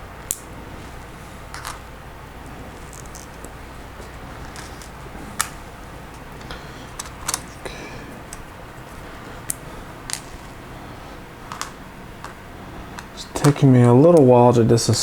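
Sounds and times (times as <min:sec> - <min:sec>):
plastic parts clicking: 0:02.9 - 0:07.6, 0:11.5 - 0:12.4.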